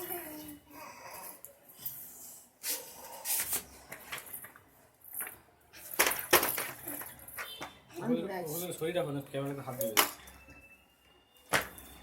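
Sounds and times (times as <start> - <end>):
knocks and clatters of parts: 3.9 - 7.8.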